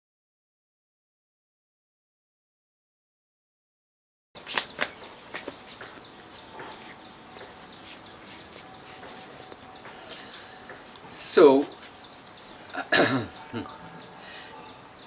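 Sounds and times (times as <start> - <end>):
small birds chirping: 4.4 - 15.0.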